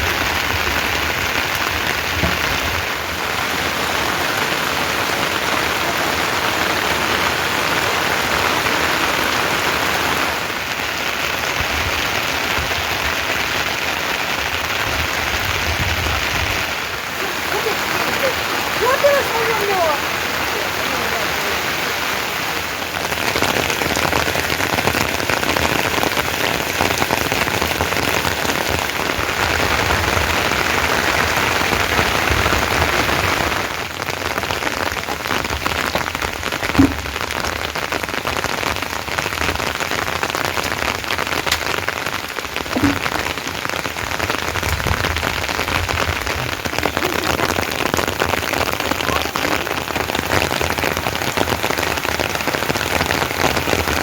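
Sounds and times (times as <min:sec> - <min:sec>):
steady rain pattering: 0:00.0 - 0:54.0
loud knocks: 0:02.0 - 0:02.9, 0:36.6 - 0:37.5, 0:42.7 - 0:43.2.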